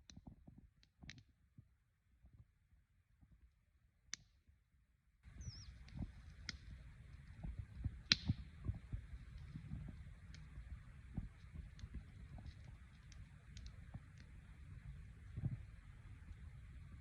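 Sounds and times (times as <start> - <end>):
steady hiss: 5.2 - 17.0
falling bird chirp: 5.3 - 5.9.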